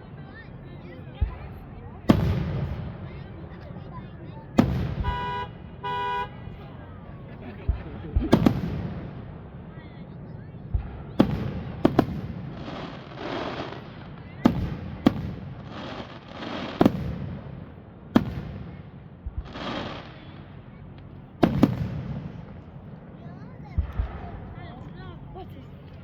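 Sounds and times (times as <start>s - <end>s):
hissing crackle: 10.8s - 23.2s.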